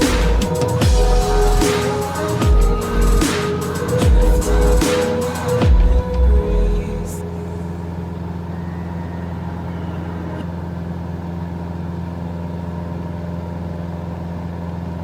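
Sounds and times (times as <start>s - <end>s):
burst of music: 0.0s - 10.6s
engine droning: 0.0s - 15.0s.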